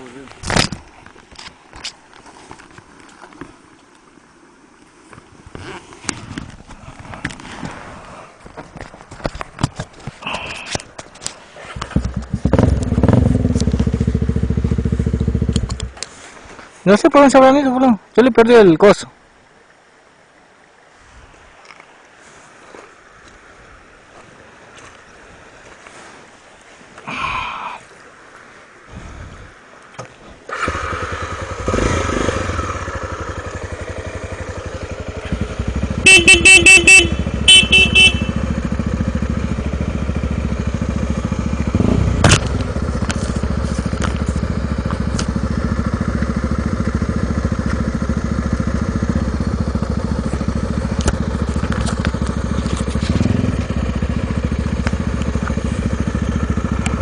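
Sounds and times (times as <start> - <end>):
motorcycle engine starting and revving: 11.8 - 16.0, 30.5 - 57.0
motorcycle horn beeps: 36.0 - 39.0.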